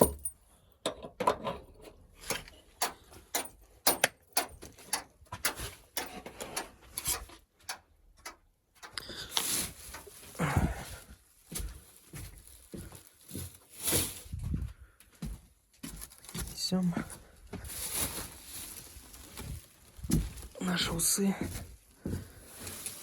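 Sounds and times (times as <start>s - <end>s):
clicks and knocks of handling: 0.0s - 10.3s
rustling scrape: 9.3s - 10.4s, 12.3s - 14.5s, 17.6s - 20.6s, 22.3s - 23.0s.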